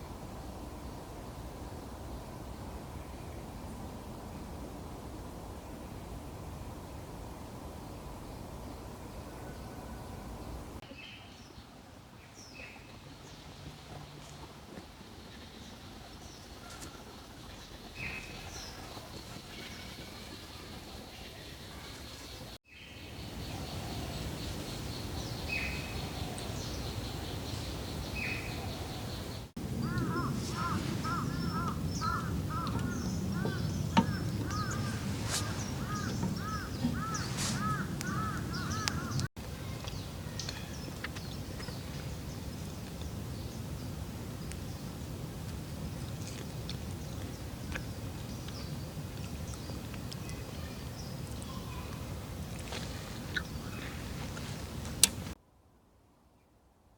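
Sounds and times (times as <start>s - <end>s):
steady outdoor hiss: 0.0s - 56.9s
small birds chirping: 15.2s - 45.0s, 45.8s - 55.4s
steady low rumble: 29.6s - 39.3s.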